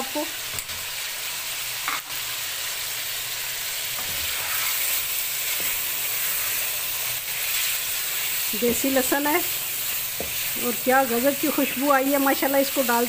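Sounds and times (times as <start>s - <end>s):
chicken sizzling in a pot: 0.0s - 13.0s
wooden spoon stirring: 9.9s - 11.0s.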